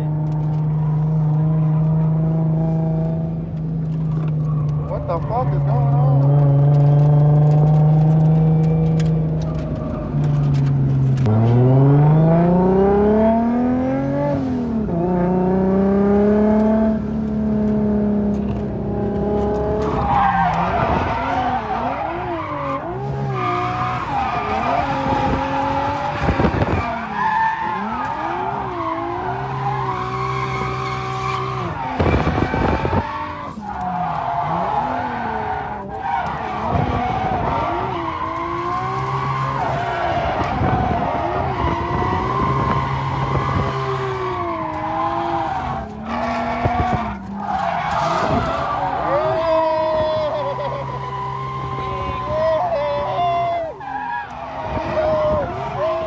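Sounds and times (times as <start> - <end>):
car engine revving: 0.0 - 56.0
tyres squealing: 19.7 - 56.0.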